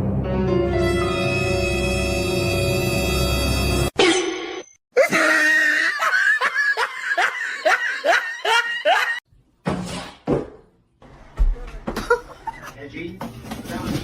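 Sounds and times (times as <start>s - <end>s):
person laughing hard: 5.0s - 9.2s.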